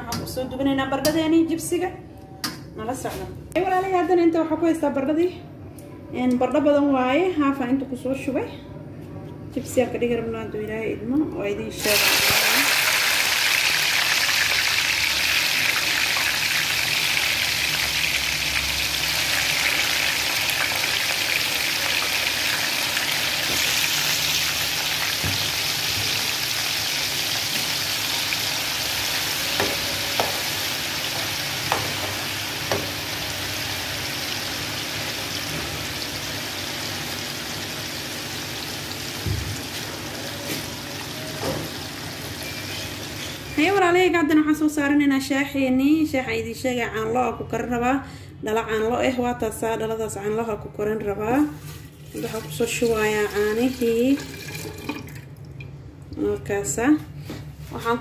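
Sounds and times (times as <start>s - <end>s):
chips sizzling in hot oil: 11.8s - 43.5s.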